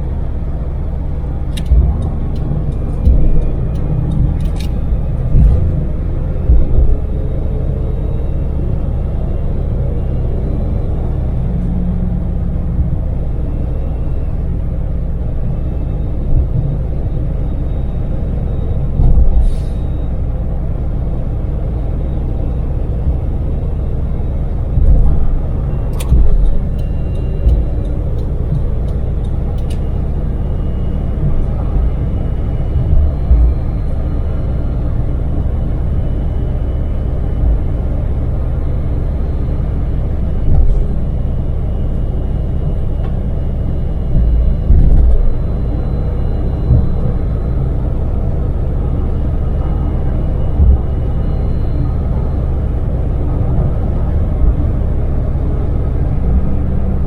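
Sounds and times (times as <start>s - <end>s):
van engine and road noise: 0.0s - 57.0s
low thumps: 0.6s - 13.2s, 18.8s - 20.4s, 24.4s - 36.3s, 39.9s - 48.5s, 50.2s - 51.2s
sharp click: 1.5s - 4.8s, 29.6s - 29.8s.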